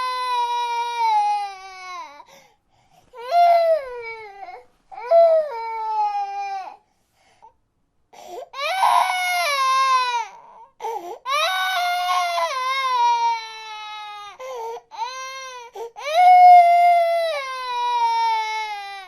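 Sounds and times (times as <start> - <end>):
infant crying: 0.0 - 2.3, 3.2 - 6.8, 8.2 - 19.0
infant gasping breaths: 8.1 - 8.5.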